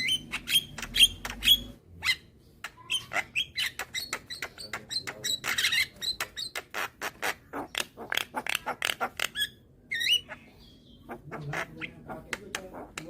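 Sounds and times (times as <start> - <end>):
bird chattering: 0.0 - 13.0.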